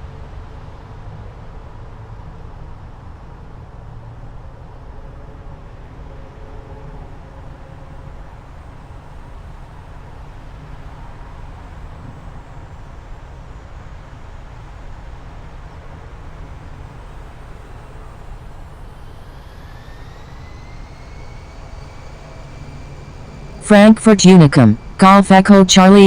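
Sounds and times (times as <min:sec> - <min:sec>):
rising turbine engine whine: 0:05.2 - 0:26.0.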